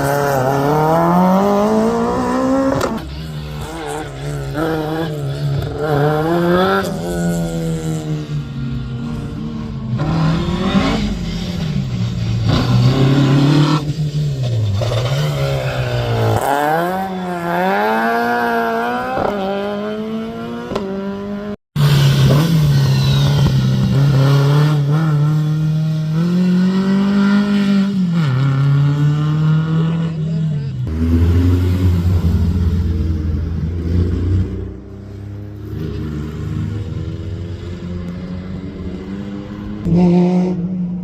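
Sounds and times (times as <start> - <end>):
rally car engine revving: 0.0 - 41.0.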